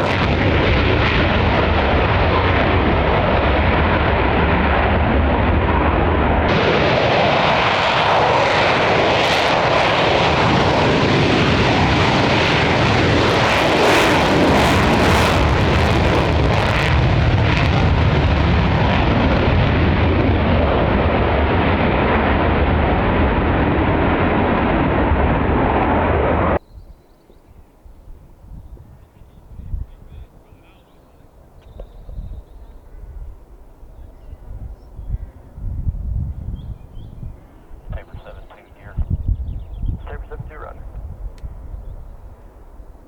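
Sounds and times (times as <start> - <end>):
jet crackle: 0.0 - 26.6, 37.8 - 39.0, 40.0 - 41.5
military jet roaring: 0.0 - 26.6.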